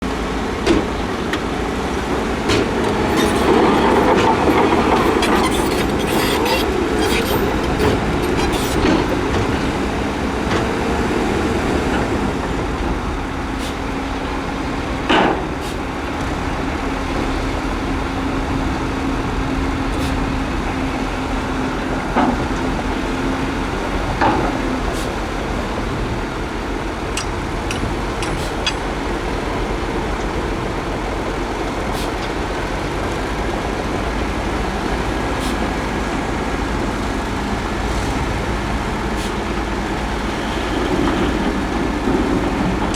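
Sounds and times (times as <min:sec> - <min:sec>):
heavy machinery running: 0:00.0 - 0:42.9
loud metallic clanks: 0:27.0 - 0:29.3.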